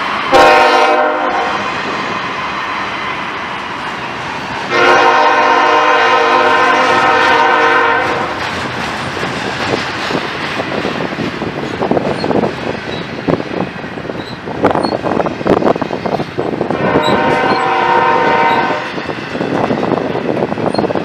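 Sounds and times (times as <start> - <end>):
train air horn blast: 0.3 - 1.8, 4.7 - 8.4, 16.7 - 19.0.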